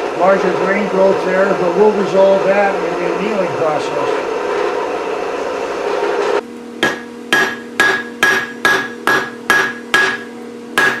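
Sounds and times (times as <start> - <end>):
hammer striking anvil: 6.8 - 11.0.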